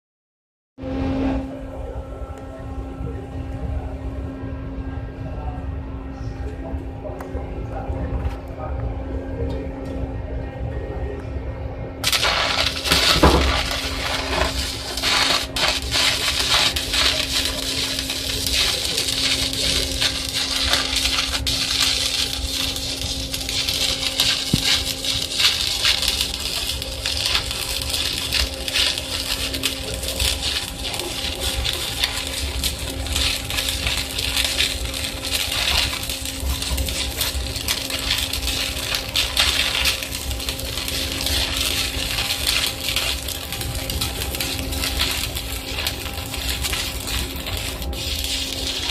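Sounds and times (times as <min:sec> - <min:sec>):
steady hum: 0:00.8 - 0:48.9
welding arc crackling: 0:12.0 - 0:48.9.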